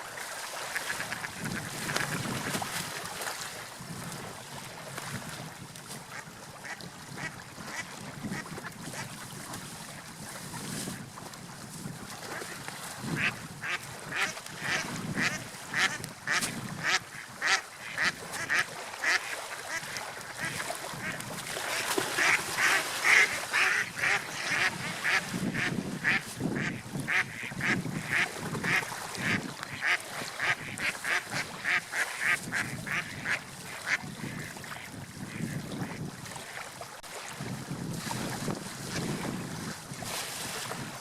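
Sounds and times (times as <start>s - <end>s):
water: 0.0s - 41.0s
wind: 0.0s - 41.0s.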